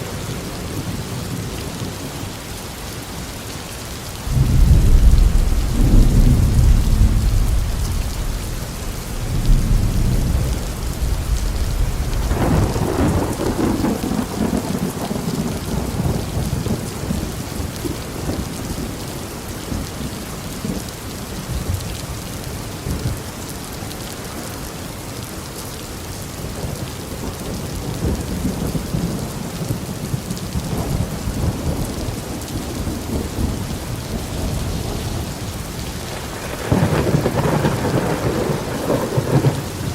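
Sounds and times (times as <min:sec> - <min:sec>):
heavy rain: 0:00.0 - 0:39.9
rolling thunder: 0:04.2 - 0:17.4, 0:27.5 - 0:39.9.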